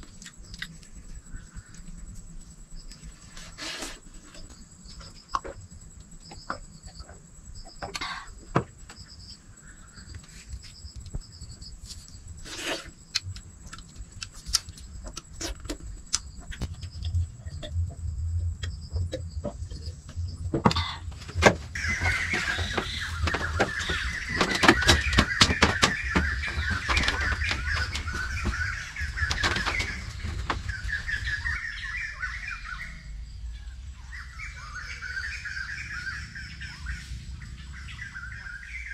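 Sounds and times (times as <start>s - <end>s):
small birds chattering: 0.0s - 38.9s
low steady rumble: 13.0s - 38.6s
sharp clicks and knocks: 18.6s - 31.0s.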